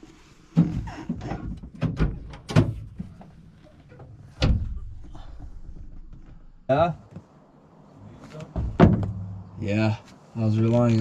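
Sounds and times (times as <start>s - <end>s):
knocks and clunks: 0.5s - 7.3s, 8.4s - 9.6s.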